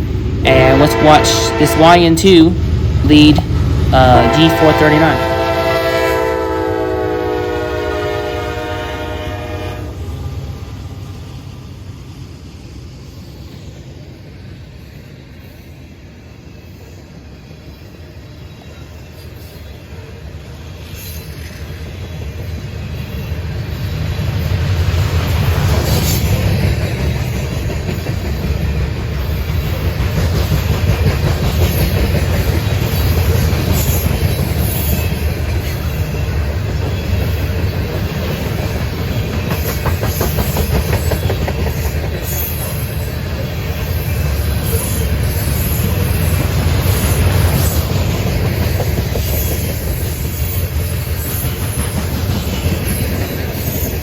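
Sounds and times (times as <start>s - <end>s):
train low rumble: 0.0s - 54.0s
train wheels clacking on rails: 18.8s - 54.0s.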